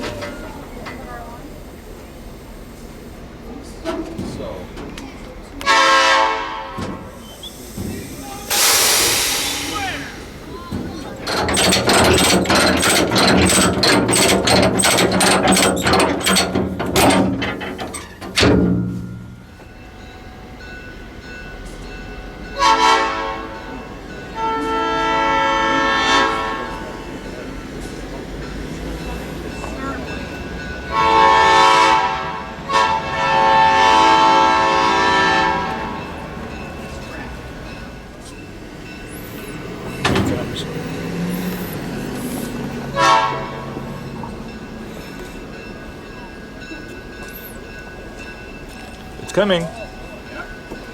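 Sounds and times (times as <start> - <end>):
train wheels clicking and clanking: 0.0 - 50.9
locomotive air horn blasts: 5.6 - 7.1, 22.6 - 23.6, 24.4 - 27.0, 30.9 - 36.0, 42.8 - 43.9
heavy clank: 6.7 - 19.7, 39.3 - 40.8.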